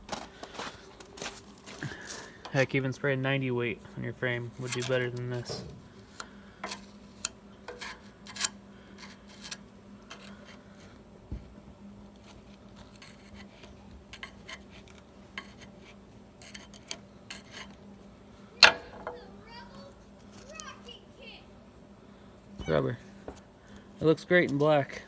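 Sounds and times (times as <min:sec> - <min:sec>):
faint steady hum: 0:00.0 - 0:25.0
light scrapes and clicks: 0:04.4 - 0:11.0, 0:12.2 - 0:17.8.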